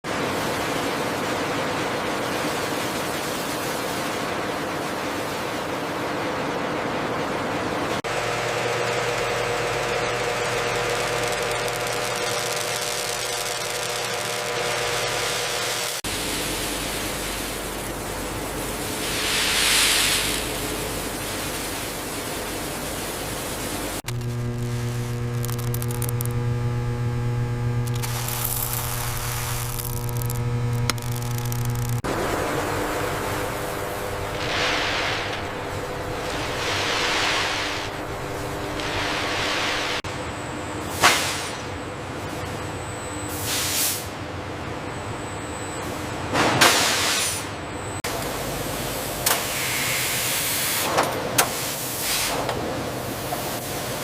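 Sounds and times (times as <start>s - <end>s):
factory machinery hissing: 8.1s - 24.0s, 32.0s - 40.0s, 40.8s - 41.8s, 43.3s - 44.4s, 46.5s - 54.0s
faint hum: 8.1s - 40.9s
machinery hiss: 18.6s - 24.0s, 30.9s - 40.0s.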